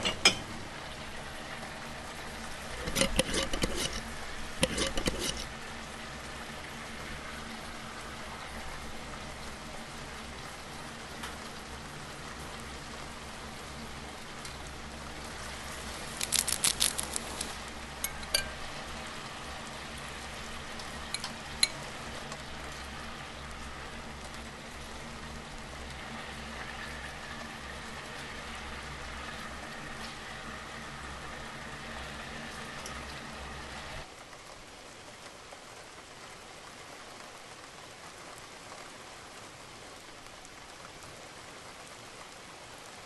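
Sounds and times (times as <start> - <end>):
food sizzling in a pan: 12.4 - 33.9.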